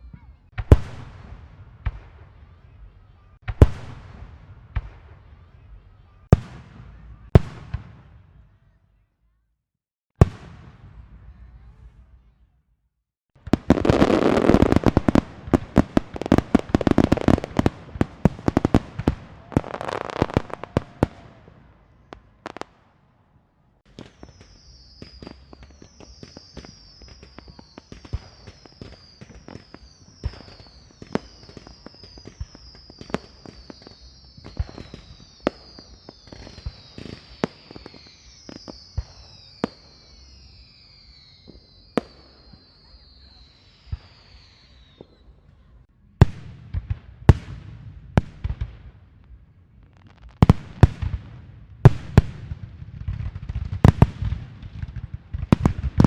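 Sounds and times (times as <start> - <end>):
firework pops and cracks: 13.4 - 21.4, 23.9 - 40.4, 49.9 - 56.0
firecrackers crackling: 13.4 - 23.0, 23.8 - 45.3, 46.2 - 56.0
high falling whistles: 24.0 - 45.3.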